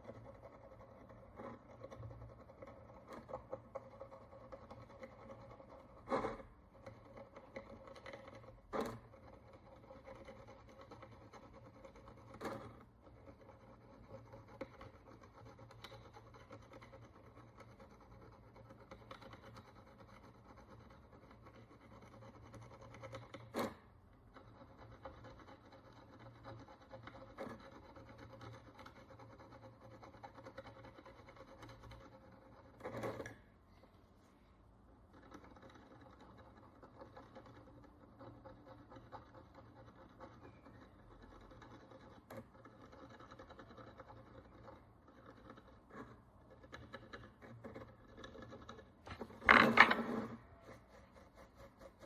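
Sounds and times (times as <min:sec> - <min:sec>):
hand tool scraping coin: 0:47.7 - 0:52.0.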